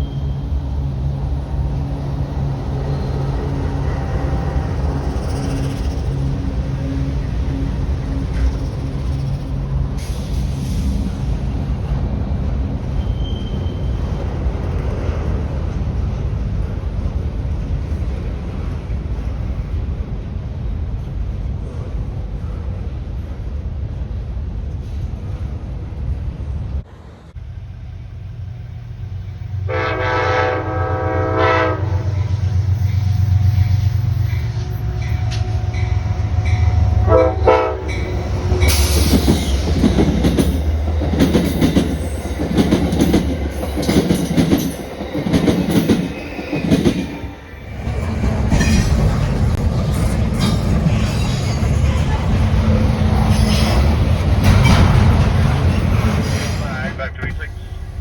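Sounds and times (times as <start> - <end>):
locomotive engine rumbling: 0.0 - 58.0
train horn blasts: 29.6 - 32.5, 34.5 - 38.9
train wheels clattering over rail joints: 38.6 - 47.2.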